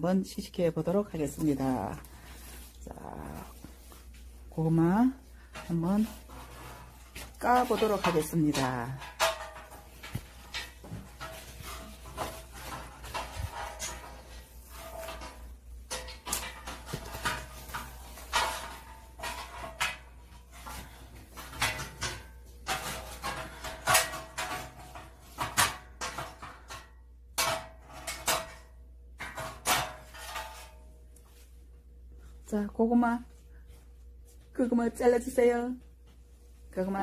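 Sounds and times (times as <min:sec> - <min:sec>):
sweet potatoes crackling and rustling: 0:00.1 - 0:25.6.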